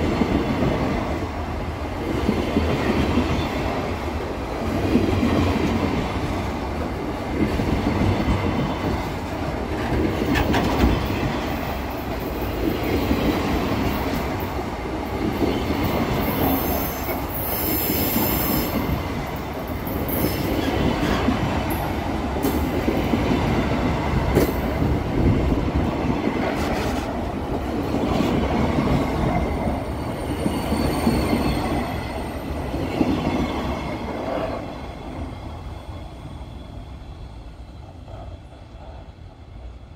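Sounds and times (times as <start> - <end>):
steel wheels rumbling on rail: 0.0 - 39.9
high wheel squeal: 29.8 - 32.5.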